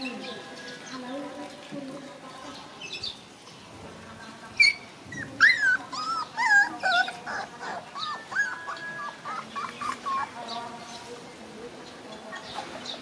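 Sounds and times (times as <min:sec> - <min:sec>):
baby monkey crying: 0:05.4 - 0:10.4.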